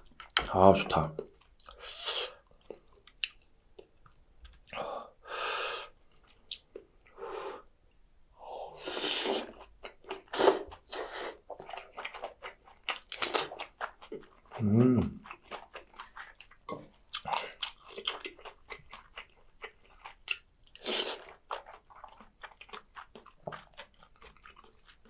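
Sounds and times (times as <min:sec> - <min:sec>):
chewing with wet mouth sounds: 0:00.0 - 0:00.5, 0:01.1 - 0:04.8, 0:09.4 - 0:25.0.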